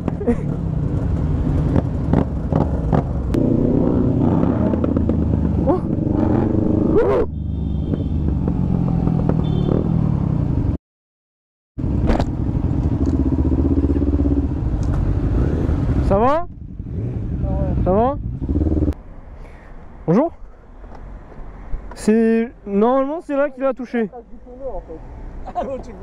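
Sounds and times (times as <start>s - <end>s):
motorcycle engine running: 11.8s - 19.0s.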